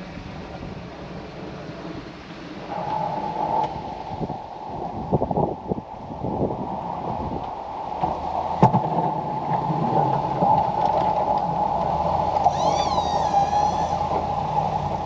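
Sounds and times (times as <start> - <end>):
high warbling squeal: 12.4 - 15.0.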